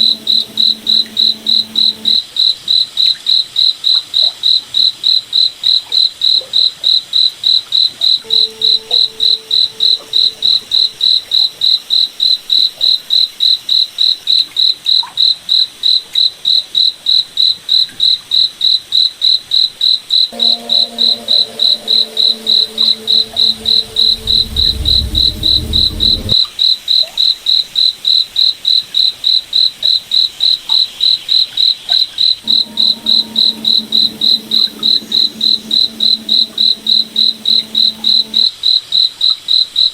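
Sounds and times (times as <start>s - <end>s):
crickets chirping: 0.0s - 2.2s, 20.4s - 26.4s, 32.4s - 38.5s
faint lower tones: 0.0s - 2.2s, 20.3s - 26.4s, 32.4s - 38.5s
low rumble: 20.4s - 26.4s.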